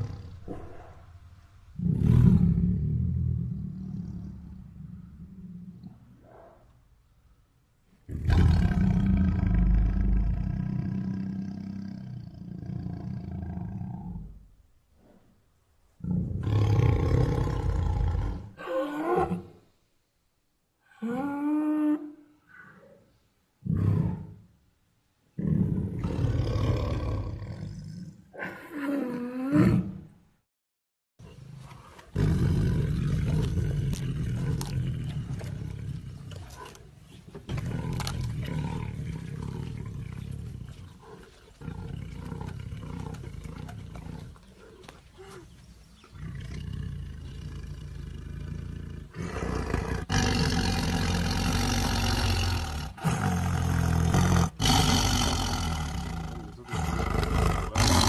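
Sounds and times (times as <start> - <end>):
tigers roaring and growling: 8.1 - 14.4, 32.0 - 45.5, 46.1 - 58.0.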